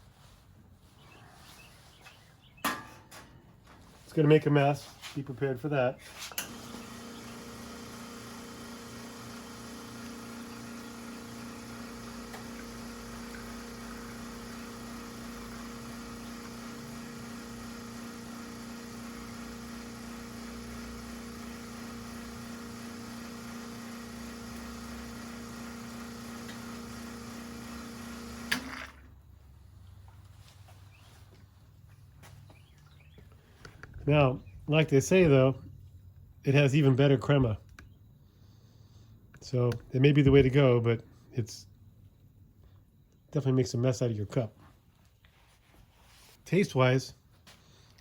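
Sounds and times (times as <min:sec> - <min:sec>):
espresso machine pump humming: 0:06.4 - 0:29.1.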